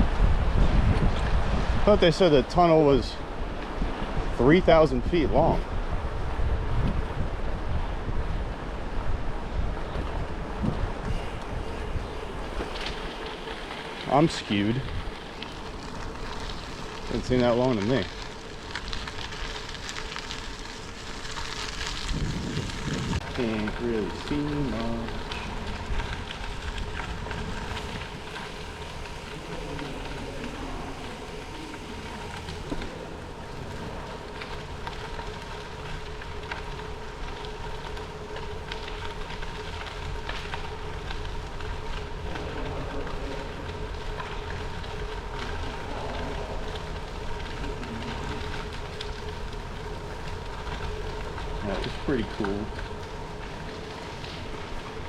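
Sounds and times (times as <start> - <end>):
bicycle tyres crackling on gravel: 0.0 - 55.0
faint constant hum: 0.0 - 55.0
wind rumble on microphone: 0.0 - 55.0
small rattles and clicks: 9.8 - 55.0.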